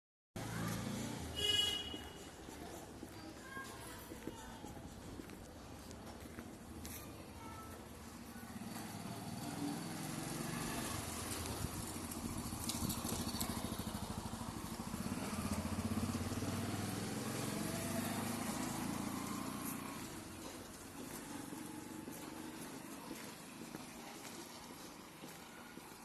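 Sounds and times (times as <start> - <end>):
small engine running: 8.6 - 23.2.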